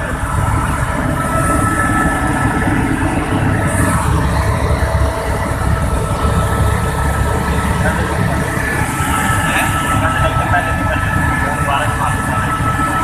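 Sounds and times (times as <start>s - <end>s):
helicopter running: 0.0s - 13.0s.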